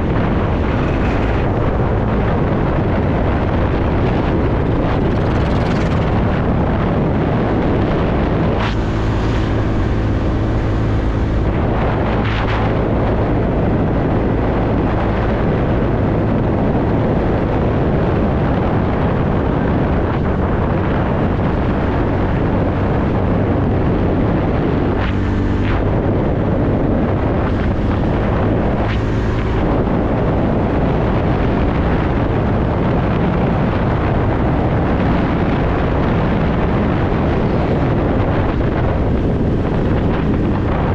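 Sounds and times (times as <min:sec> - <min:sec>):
wind rushing over microphone: 0:00.0 - 0:40.9
scooter engine running: 0:04.4 - 0:07.2.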